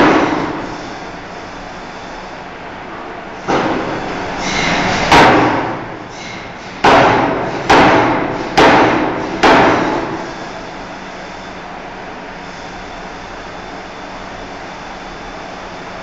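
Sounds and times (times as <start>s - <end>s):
forging hammer striking steel bar: 5.1s - 5.8s, 6.8s - 10.1s.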